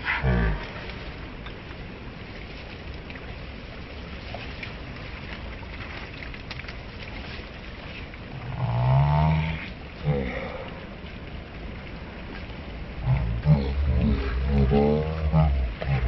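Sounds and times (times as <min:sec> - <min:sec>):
river water rushing: 0:00.0 - 0:16.0
low animal call: 0:13.0 - 0:16.0.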